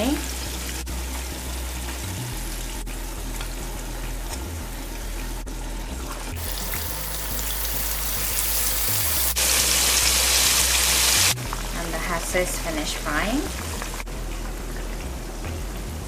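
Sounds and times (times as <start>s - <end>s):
fish frying in hot oil: 6.3s - 15.4s.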